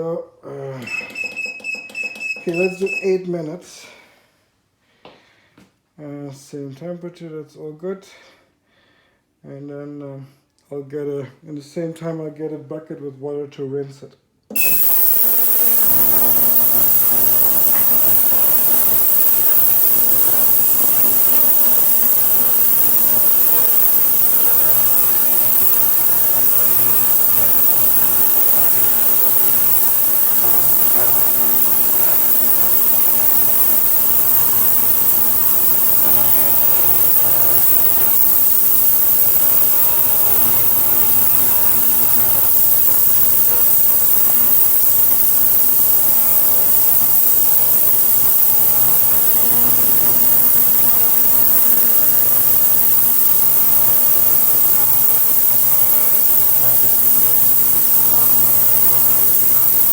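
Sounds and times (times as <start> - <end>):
ultrasonic cleaner humming and hissing: 14.5 - 59.9.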